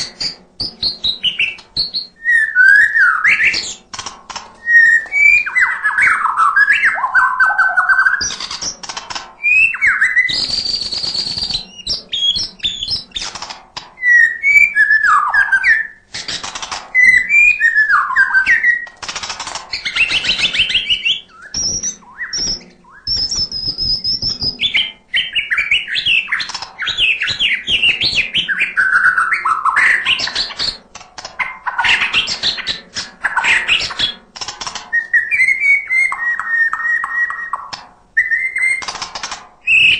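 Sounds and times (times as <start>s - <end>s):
bird singing whistled phrases: 0.0s - 3.8s, 4.6s - 8.7s, 9.4s - 13.3s, 14.0s - 16.0s, 17.0s - 18.9s, 19.8s - 30.8s, 34.9s - 38.9s, 39.6s - 39.9s.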